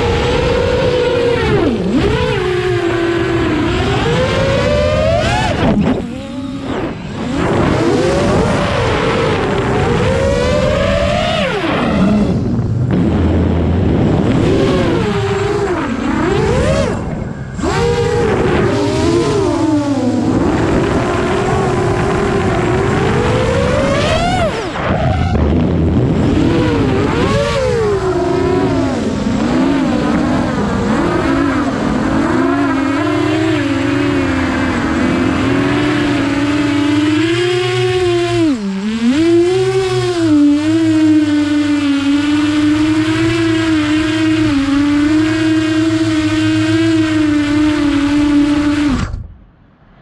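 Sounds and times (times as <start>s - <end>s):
vehicle engine revving: 0.0s - 49.3s.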